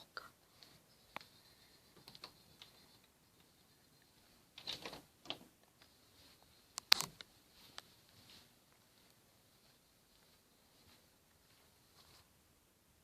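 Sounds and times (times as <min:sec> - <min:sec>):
handling clicks and rustles: 0:04.2 - 0:09.2.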